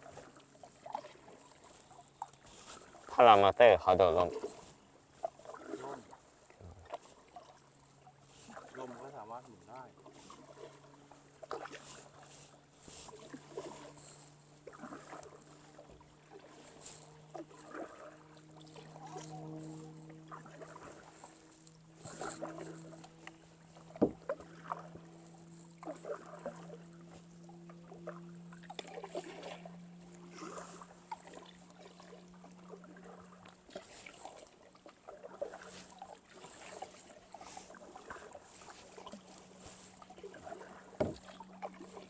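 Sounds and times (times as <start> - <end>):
distant engine hum: 0.0 - 42.0
paddle splashing in water: 0.0 - 42.0.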